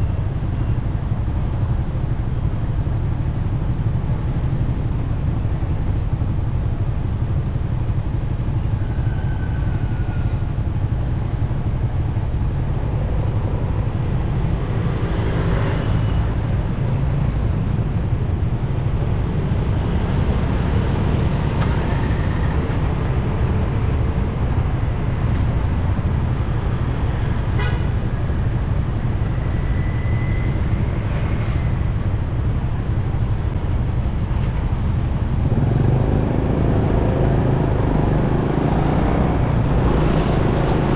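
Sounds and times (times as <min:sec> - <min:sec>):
traffic: 0:00.0 - 0:40.9.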